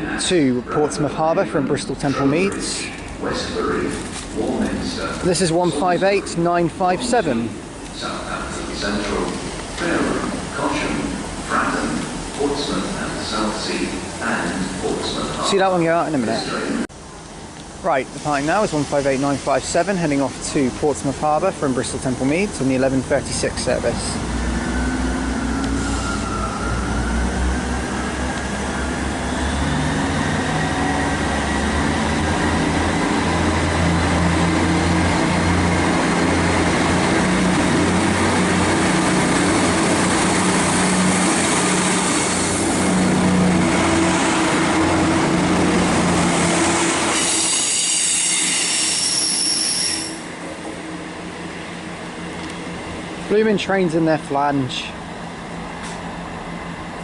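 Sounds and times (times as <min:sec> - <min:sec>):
train diesel engines rumbling: 0:00.0 - 0:57.0
wheel flange squeal: 0:24.5 - 0:28.1, 0:47.1 - 0:50.3.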